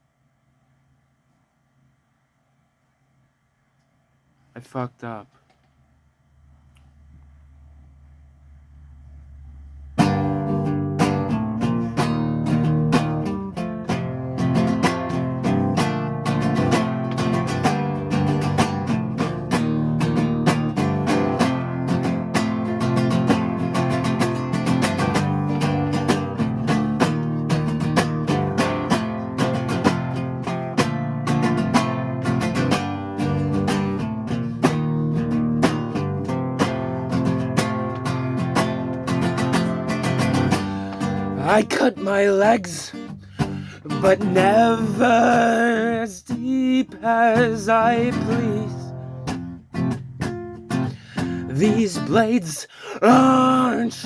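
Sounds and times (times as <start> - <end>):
acoustic guitar strummed and picked: 9.8 - 54.0.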